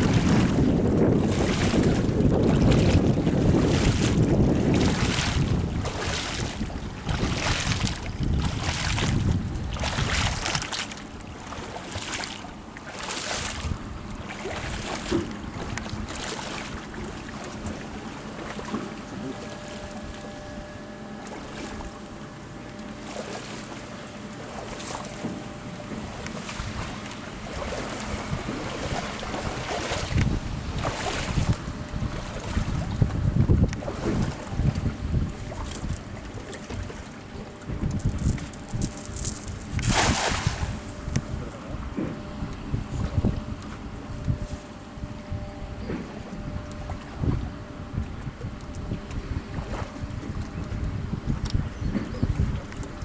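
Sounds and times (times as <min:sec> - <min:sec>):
water splashing in strokes: 0:00.0 - 0:20.6, 0:21.2 - 0:41.1
wind buffeting microphone: 0:00.0 - 0:20.8, 0:24.5 - 0:53.0.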